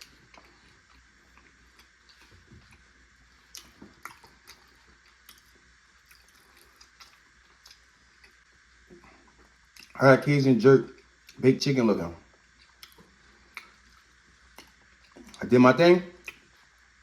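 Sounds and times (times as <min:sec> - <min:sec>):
wet chewing mouth clicks: 0:00.0 - 0:10.0, 0:12.4 - 0:15.4, 0:16.2 - 0:16.5.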